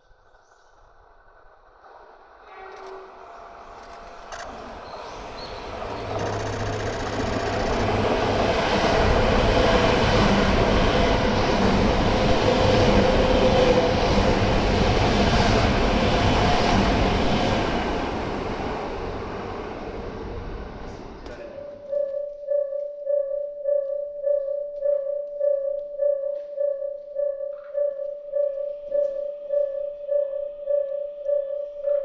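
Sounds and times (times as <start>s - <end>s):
train passing by: 0.8s - 21.9s.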